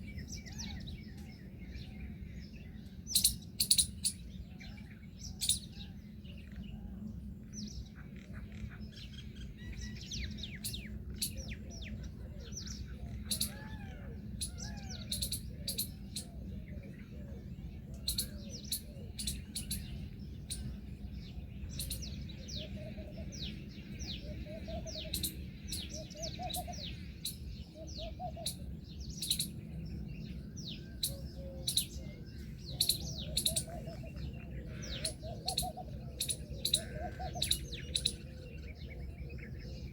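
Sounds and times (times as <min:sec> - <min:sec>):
lower arched bird calls: 0:00.0 - 0:06.9, 0:07.8 - 0:39.9
birds chirping: 0:00.0 - 0:39.9
steady low rumble: 0:00.0 - 0:39.9.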